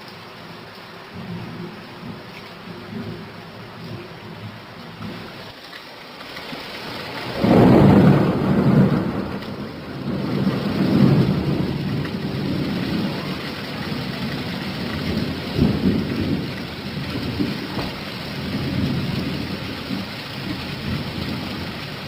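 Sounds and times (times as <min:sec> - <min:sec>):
steady rain: 0:00.0 - 0:22.0
thunder rumbling: 0:01.1 - 0:05.5, 0:06.7 - 0:22.0
sharp thunder crack: 0:07.3 - 0:13.3, 0:13.9 - 0:21.7.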